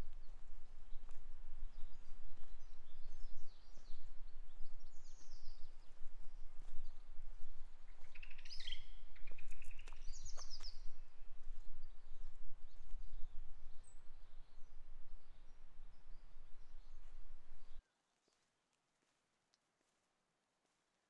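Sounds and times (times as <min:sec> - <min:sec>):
small bird chirping: 0:07.9 - 0:12.1.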